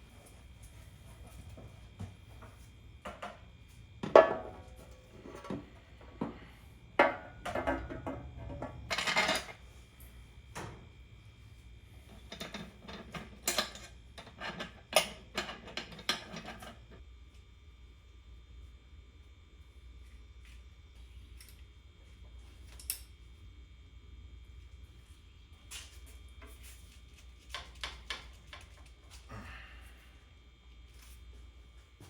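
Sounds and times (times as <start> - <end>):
tools and engine parts clinking: 7.5 - 9.6, 12.2 - 16.8.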